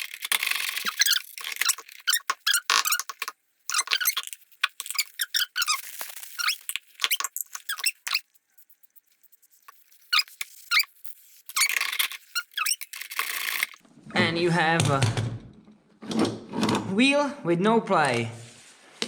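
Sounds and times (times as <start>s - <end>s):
squeaks and clicks from wheel bearings: 0.0s - 13.8s.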